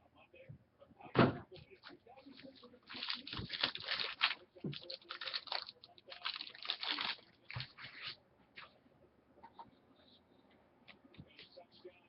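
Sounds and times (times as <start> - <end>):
wrapper crinkling and tearing: 2.4 - 7.8.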